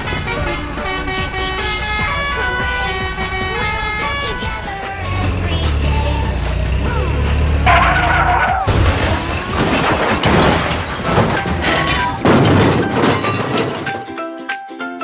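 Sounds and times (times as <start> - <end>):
background music: 0.0 - 15.0
cartoon crashes: 7.6 - 14.0.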